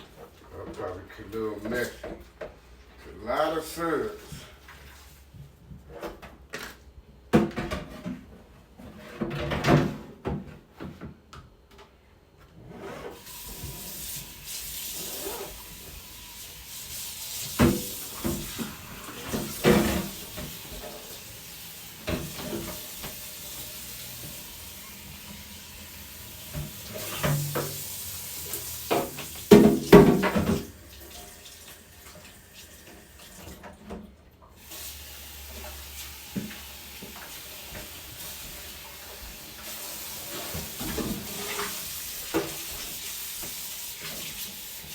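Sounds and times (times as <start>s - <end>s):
clatter of things in sink: 5.8s - 11.2s, 17.3s - 21.2s, 22.0s - 23.5s, 26.5s - 32.3s, 36.4s - 44.5s
tap running into a sink: 13.2s - 34.0s, 34.6s - 44.6s.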